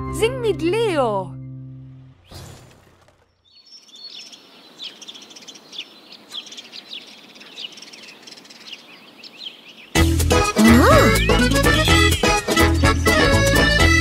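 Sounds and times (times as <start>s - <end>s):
small birds chirping: 3.0s - 14.0s
faint outdoor hiss: 3.5s - 11.2s.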